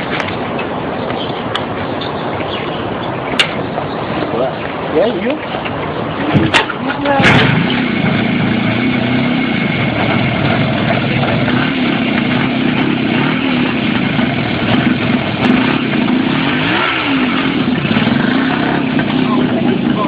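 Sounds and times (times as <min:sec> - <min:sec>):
motorcycle engine revving: 0:06.0 - 0:20.0.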